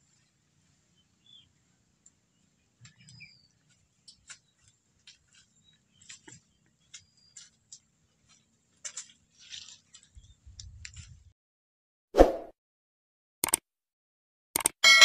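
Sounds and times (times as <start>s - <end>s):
faint bird chirps: 2.4s - 4.7s
small clicks: 13.4s - 13.6s, 14.6s - 14.8s.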